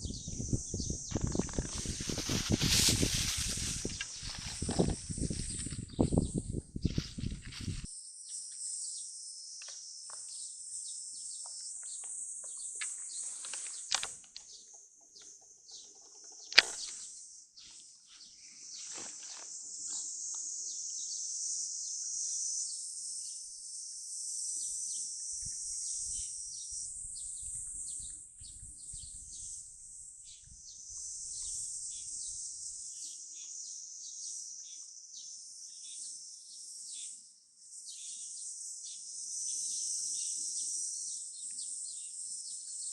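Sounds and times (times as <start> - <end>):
insects shrill chorus: 0.0 - 9.8, 24.6 - 42.8.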